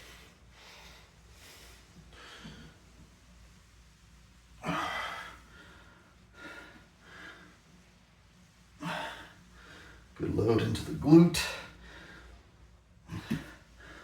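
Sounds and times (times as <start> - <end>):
man breathing hard: 11.4 - 14.0.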